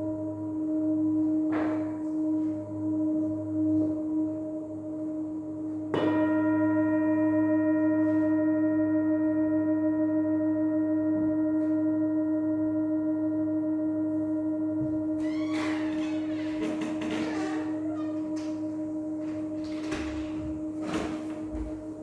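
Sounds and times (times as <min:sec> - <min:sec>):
singing bowls ringing: 0:00.0 - 0:22.0
singing bowl struck: 0:05.9 - 0:15.2.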